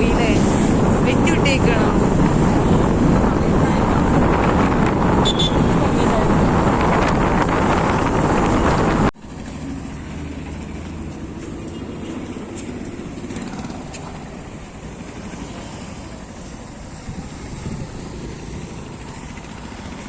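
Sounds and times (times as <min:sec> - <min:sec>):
vehicle and road rumble: 0:00.0 - 0:20.0
wind rushing over microphone: 0:00.0 - 0:20.0.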